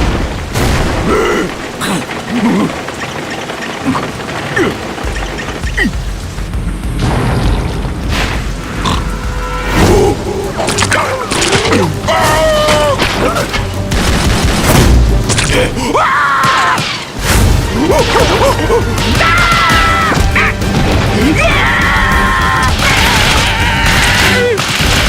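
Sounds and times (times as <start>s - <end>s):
background music: 3.9s - 25.0s
hit and crash sound effects: 6.8s - 10.2s.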